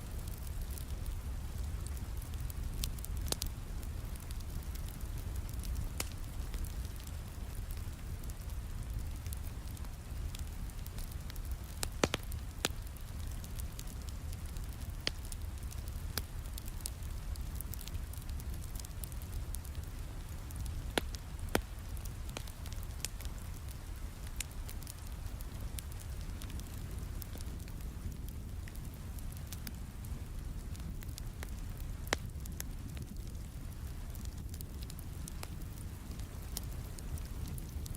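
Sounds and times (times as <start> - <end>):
fireplace crackling and popping: 0.0 - 37.9
steady rain: 0.0 - 37.9.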